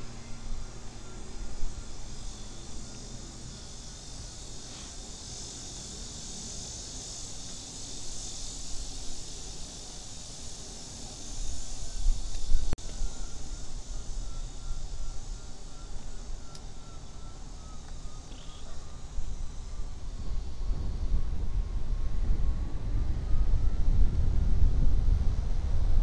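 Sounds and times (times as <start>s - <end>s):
insects buzzing: 0.0s - 25.1s
wind rumble on microphone: 5.9s - 16.7s, 18.6s - 26.0s.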